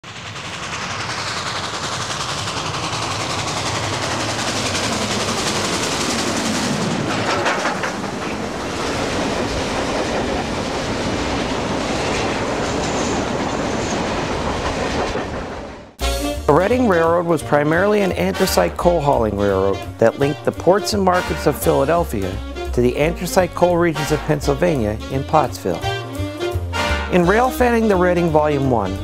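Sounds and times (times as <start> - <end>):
steam train wheels clattering: 0.0 - 16.0.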